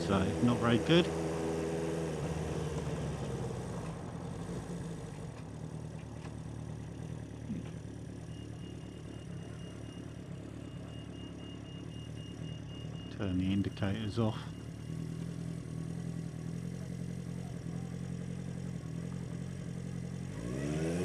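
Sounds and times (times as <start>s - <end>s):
motorcycle engine running: 0.0s - 21.0s
faint high pulsing beep: 7.5s - 15.4s.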